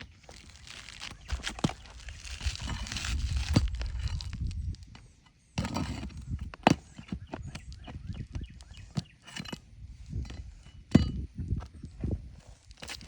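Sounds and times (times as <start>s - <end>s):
shingle scraping and tearing: 0.0s - 4.6s.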